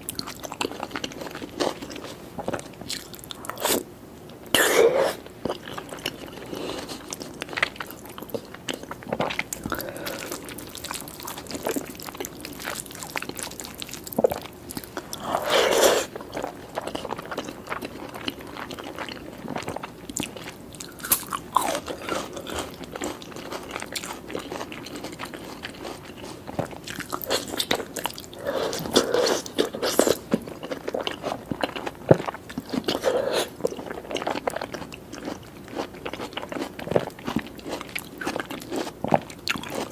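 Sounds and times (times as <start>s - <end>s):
chewing and crunchy bites: 0.0s - 3.8s, 4.5s - 39.9s.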